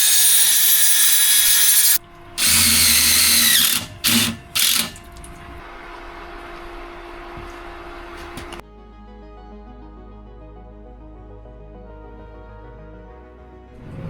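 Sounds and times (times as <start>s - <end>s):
power drill whining in bursts: 0.0s - 5.3s.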